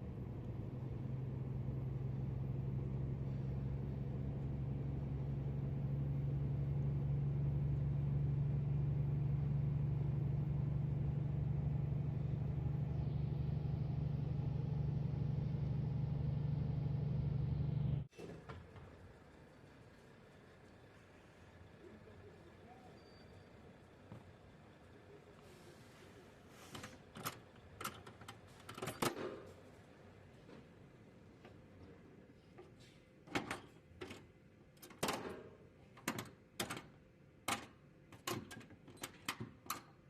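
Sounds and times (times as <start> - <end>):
truck diesel engine droning: 0.0 - 18.1.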